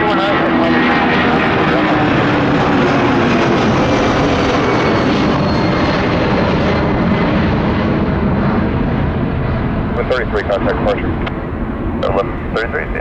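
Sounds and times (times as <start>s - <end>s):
jet airliner taking off: 0.0s - 13.0s.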